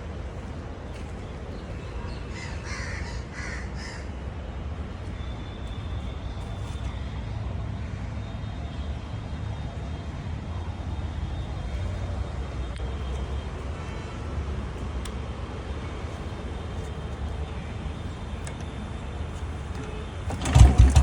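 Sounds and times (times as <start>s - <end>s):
motorcycle engine running: 20.3s - 21.0s.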